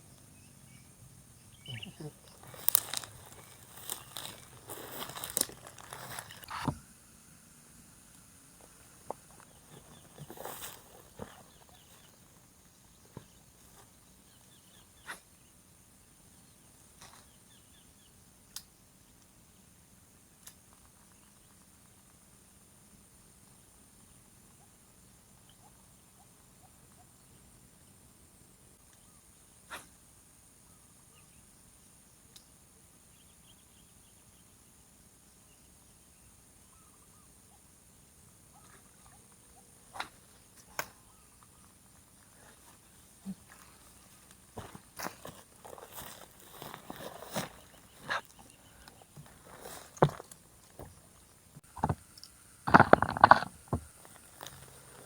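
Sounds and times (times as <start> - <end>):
soft chirps: 0.0 - 6.7
faint chirps: 0.0 - 7.4, 8.0 - 18.2.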